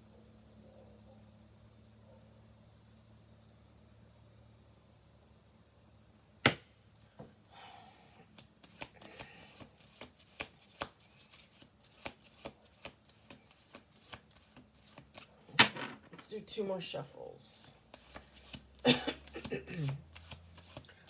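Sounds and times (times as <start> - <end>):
sharp knock: 6.5 - 6.7
cards being shuffled: 8.4 - 16.4, 17.9 - 21.0.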